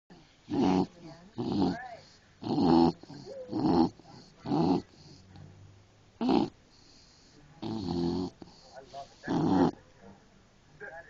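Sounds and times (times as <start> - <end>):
dog snoring loudly: 0.5 - 5.4, 6.2 - 9.8.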